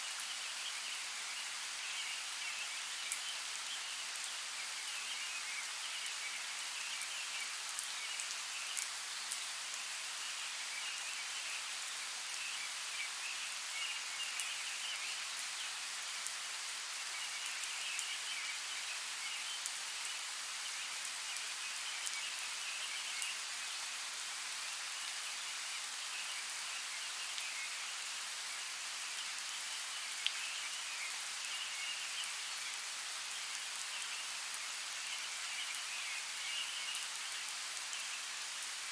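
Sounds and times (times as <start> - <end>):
rain falling in forest: 0.0 - 38.9.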